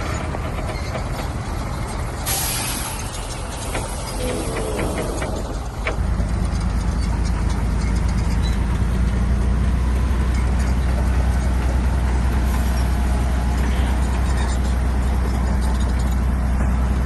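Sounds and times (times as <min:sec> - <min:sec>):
heavy diesel engine droning: 0:00.0 - 0:17.0.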